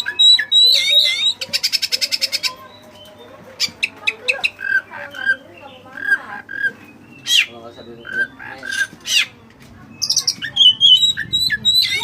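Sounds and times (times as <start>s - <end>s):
bird singing whistled notes: 0.0s - 3.2s, 10.0s - 12.0s.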